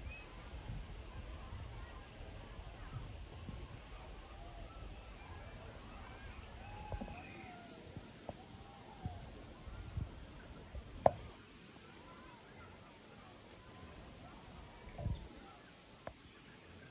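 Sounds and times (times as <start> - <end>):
songbirds chirping: 3.8 - 16.9.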